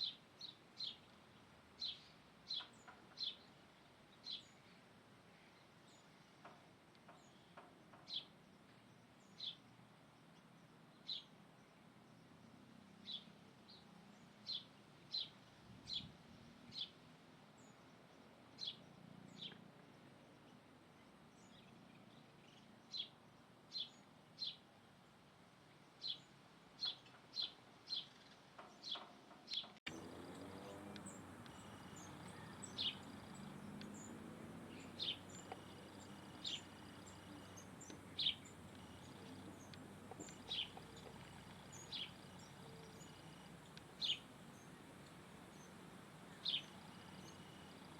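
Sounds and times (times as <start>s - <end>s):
faint background noise: 0.0s - 47.9s
bird chirping: 1.8s - 3.5s, 26.0s - 47.9s.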